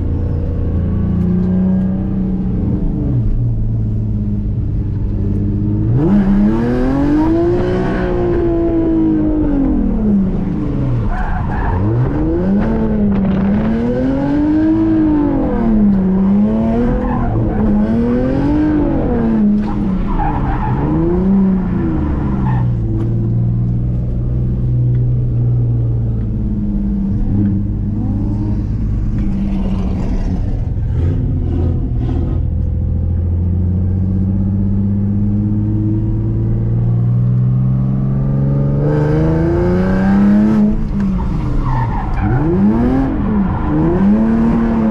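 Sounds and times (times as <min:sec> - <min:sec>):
car engine revving: 0:00.0 - 0:44.9
tires skidding: 0:10.9 - 0:16.0, 0:16.7 - 0:23.2, 0:40.3 - 0:44.9.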